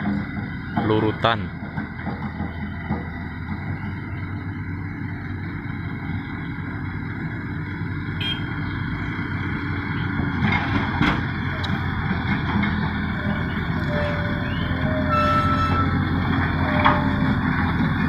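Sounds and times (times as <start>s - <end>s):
truck diesel engine running: 0.0s - 18.0s.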